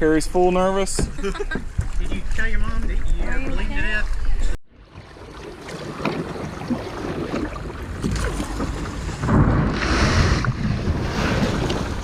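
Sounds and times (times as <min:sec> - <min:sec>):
river water flowing: 0:01.7 - 0:09.2.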